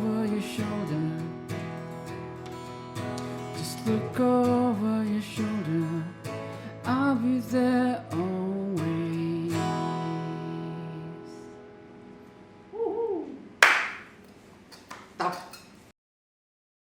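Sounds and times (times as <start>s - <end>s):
acoustic guitar strum: 0.0s - 11.8s
short vocal exclamation: 12.7s - 13.6s.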